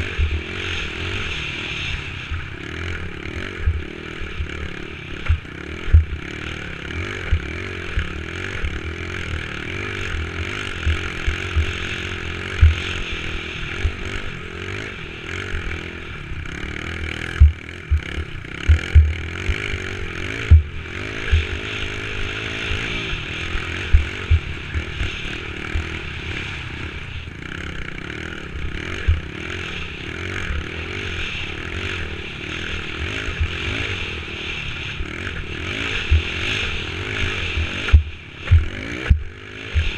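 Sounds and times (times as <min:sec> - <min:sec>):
dirt bike engine running: 0:00.0 - 0:39.9
low thumps and clattering: 0:17.4 - 0:18.0.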